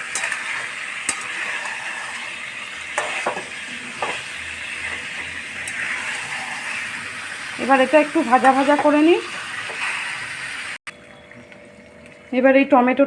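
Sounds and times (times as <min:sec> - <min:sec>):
spoon scraping against pan: 0:00.0 - 0:07.6
chicken sizzling in hot oil: 0:00.0 - 0:10.9.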